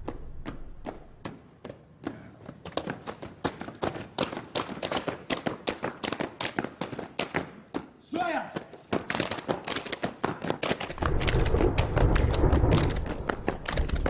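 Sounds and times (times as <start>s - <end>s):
rapid sharp taps and clicks: 8.6s - 14.0s.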